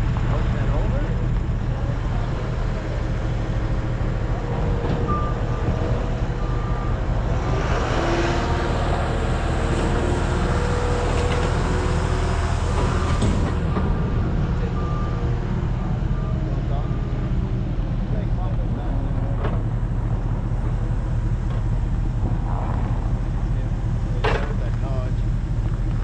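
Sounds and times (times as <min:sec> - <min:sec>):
heavy equipment diesel engine: 0:00.0 - 0:26.0
backup alarm beeping: 0:02.7 - 0:07.6, 0:12.2 - 0:17.4.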